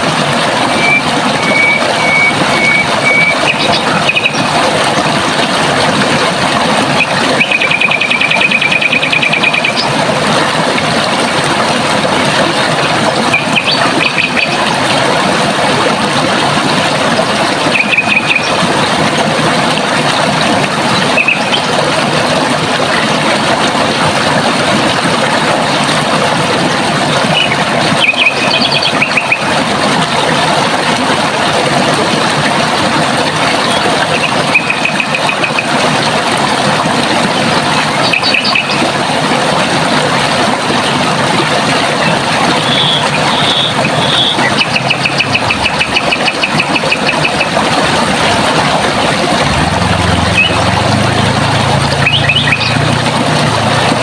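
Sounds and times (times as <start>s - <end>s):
running water: 0.0s - 54.0s
bird trilling: 17.7s - 18.5s, 52.0s - 52.8s.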